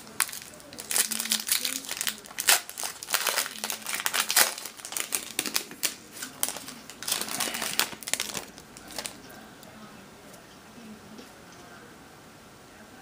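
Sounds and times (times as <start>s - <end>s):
wrapper tearing and crinkling: 0.0s - 9.2s.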